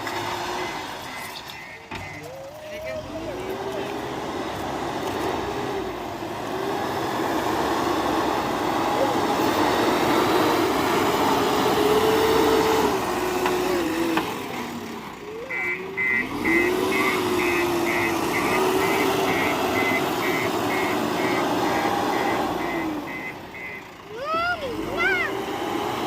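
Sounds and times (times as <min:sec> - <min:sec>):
reversing alarm beeping: 0:00.0 - 0:02.8, 0:15.3 - 0:24.0
diesel engine under load: 0:00.0 - 0:26.0.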